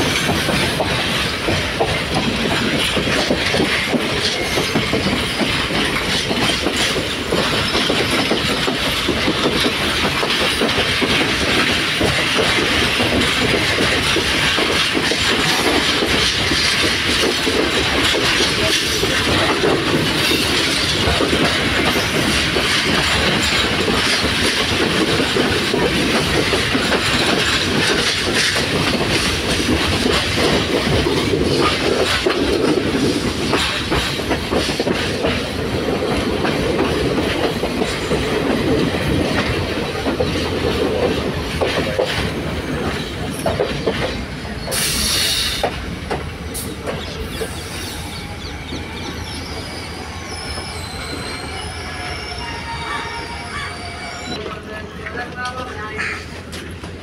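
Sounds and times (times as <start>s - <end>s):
train rumble: 0.0s - 57.0s
train wheels clattering over joints: 0.0s - 57.0s
brake squeal: 47.0s - 54.4s.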